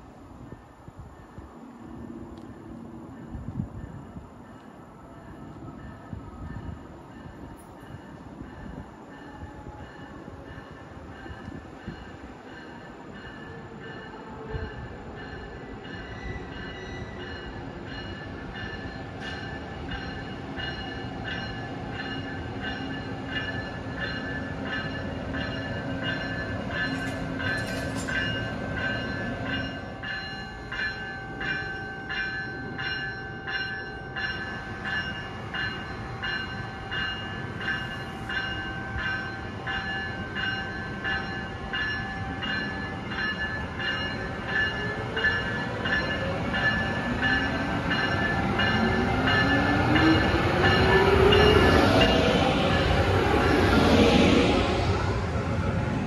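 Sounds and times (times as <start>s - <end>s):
train wheels clicking over rail joints: 22.2s - 29.7s.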